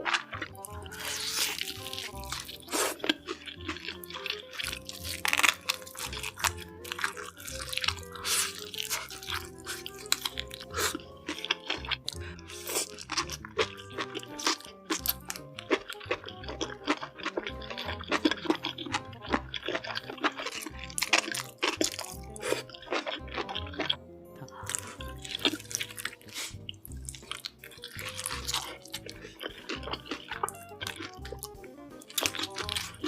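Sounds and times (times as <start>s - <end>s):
background music: 0.0s - 33.0s
crunching and chewing crisp food: 0.0s - 33.0s.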